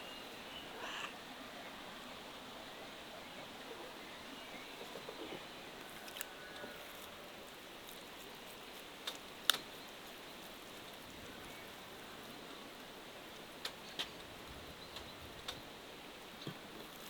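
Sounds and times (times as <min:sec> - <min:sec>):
faint bird calls: 0:00.0 - 0:07.4
outdoor background hiss: 0:00.0 - 0:17.0.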